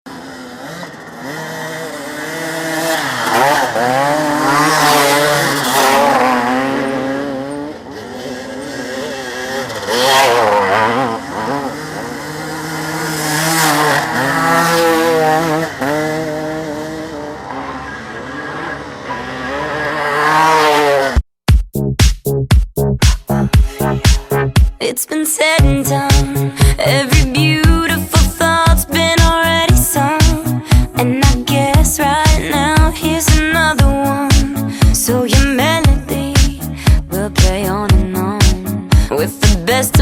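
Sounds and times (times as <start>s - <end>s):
motorcycle engines revving: 0.1s - 21.2s.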